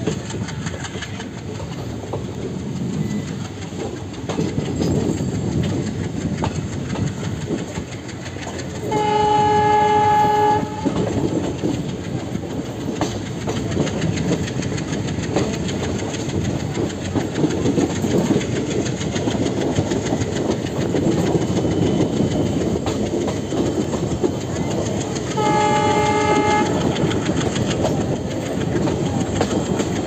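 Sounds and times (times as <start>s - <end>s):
train wheels rumbling and clattering: 0.0s - 30.0s
locomotive horn blast: 8.9s - 11.1s, 25.3s - 26.9s.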